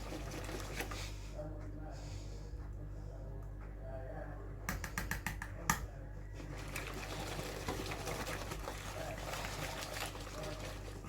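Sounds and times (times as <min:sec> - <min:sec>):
mixture being stirred: 0:00.0 - 0:01.2, 0:06.4 - 0:11.0
utensil clicking against bowl: 0:04.7 - 0:05.9.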